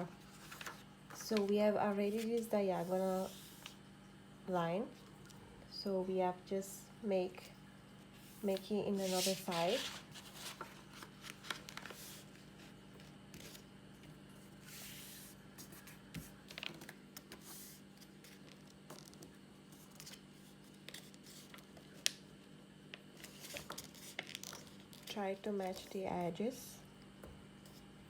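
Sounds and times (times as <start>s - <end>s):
paper rustling and creasing: 0.0s - 3.8s, 8.2s - 13.7s, 14.6s - 22.4s, 23.0s - 26.0s
steady low hum: 0.0s - 28.0s.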